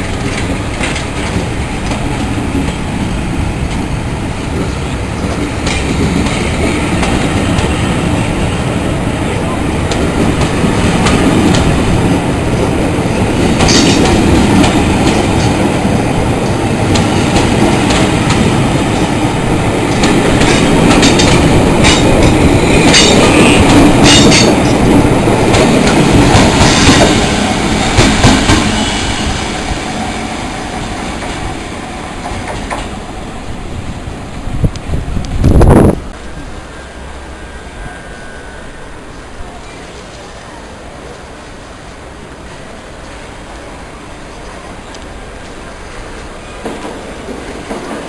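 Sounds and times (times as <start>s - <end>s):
train wheels clattering over rail joints: 0.0s - 3.0s, 4.5s - 8.2s, 9.8s - 29.5s
sharp high wheel squeals: 36.2s - 39.9s.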